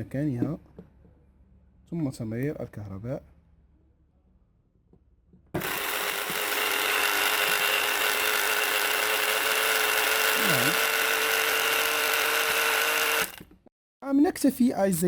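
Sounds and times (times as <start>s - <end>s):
electric pump motor rattling: 5.6s - 13.7s.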